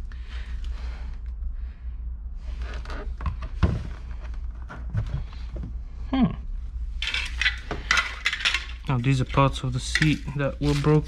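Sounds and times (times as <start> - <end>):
low steady hum: 0.0 - 11.0
loose parts knocking: 7.0 - 11.0.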